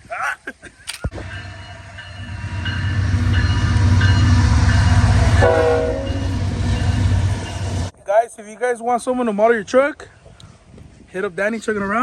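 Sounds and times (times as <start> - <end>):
train passing rumble: 1.1 - 8.0
train horn blast: 1.2 - 7.9.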